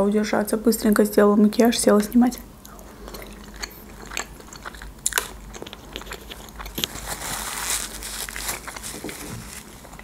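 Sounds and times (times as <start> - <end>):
close chewing with wet clicks: 2.0 - 7.0.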